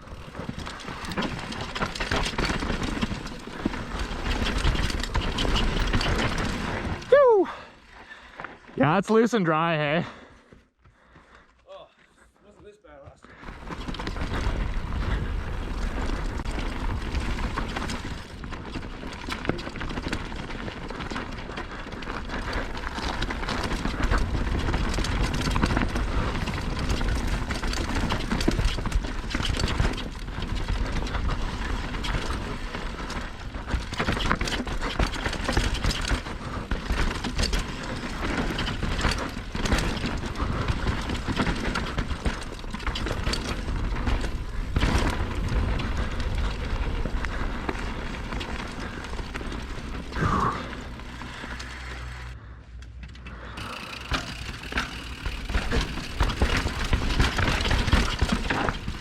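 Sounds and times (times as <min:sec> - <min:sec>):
bike rattling over bumps: 0:00.0 - 0:08.8, 0:13.3 - 0:59.0
bike tyres crunching on dirt: 0:00.0 - 0:11.4, 0:12.1 - 0:52.4, 0:53.4 - 0:59.0.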